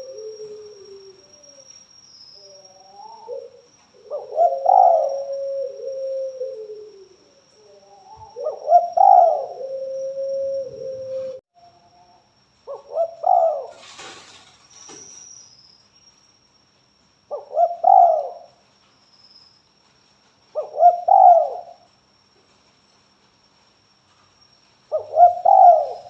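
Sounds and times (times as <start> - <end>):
dove cooing: 0.0 - 1.6, 2.6 - 11.4, 12.7 - 14.0, 17.3 - 18.6, 20.6 - 21.9, 24.9 - 26.0.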